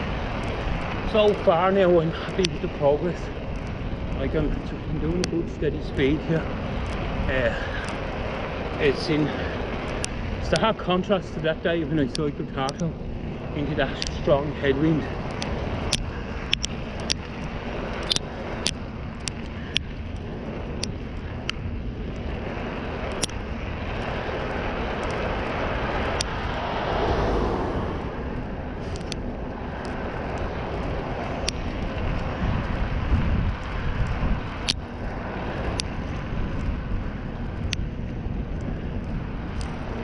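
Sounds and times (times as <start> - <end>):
motor vehicle passing: 0.0 - 40.0
road and wind noise: 0.0 - 40.0
sharp clicks: 13.7 - 14.4, 15.2 - 22.3, 23.1 - 23.4, 28.9 - 29.2, 33.5 - 34.9.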